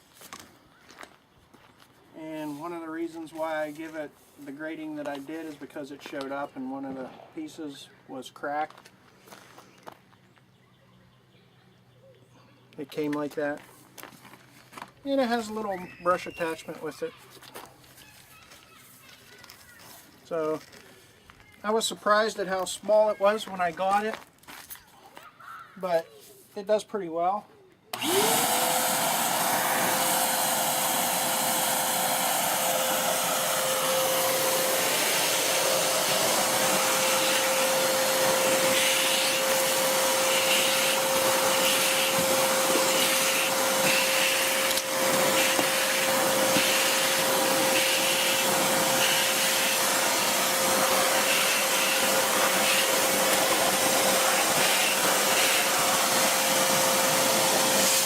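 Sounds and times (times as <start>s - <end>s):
shop vacuum motor whine: 27.9s - 58.0s
nozzle hissing: 28.0s - 58.0s.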